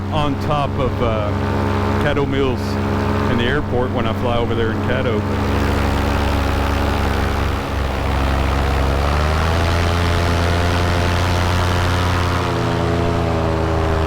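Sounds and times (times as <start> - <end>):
paramotor engine and propeller: 0.0 - 14.0.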